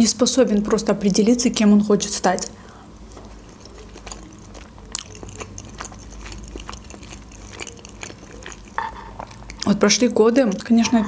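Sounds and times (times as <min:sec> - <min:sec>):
person chewing: 0:02.3 - 0:10.8
wet mouth clicks: 0:03.1 - 0:09.7.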